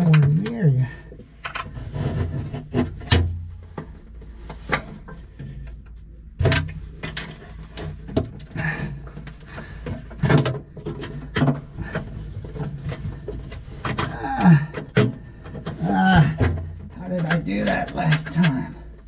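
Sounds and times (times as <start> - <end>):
metal parts and tools rattling: 6.4 - 19.0.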